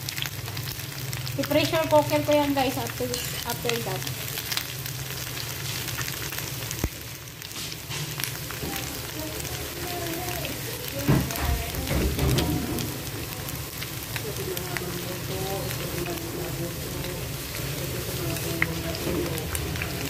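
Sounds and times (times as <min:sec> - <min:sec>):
fat spitting in frying pan: 0:02.7 - 0:14.2.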